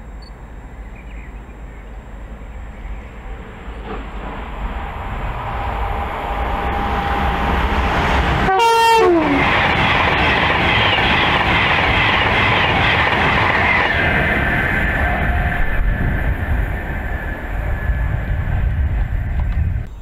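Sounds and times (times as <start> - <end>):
electric train running noise: 1.9 - 20.0
rush of wheels and air: 3.2 - 8.5, 9.4 - 19.9
train horn blast: 6.6 - 9.6.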